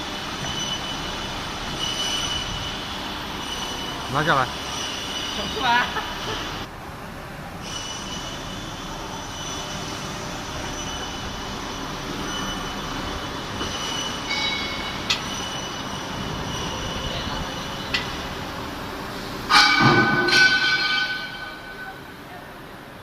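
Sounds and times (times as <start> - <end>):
industrial machine noise: 0.0 - 23.0
high squealing tones: 7.7 - 18.4.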